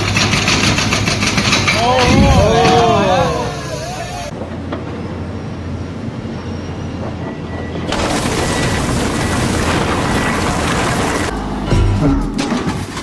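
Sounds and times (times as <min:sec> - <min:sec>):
harsh broadband noise: 0:07.9 - 0:11.3.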